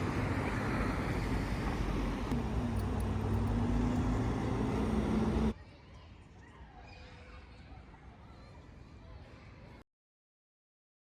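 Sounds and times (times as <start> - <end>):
traffic rumble: 0.0 - 5.6.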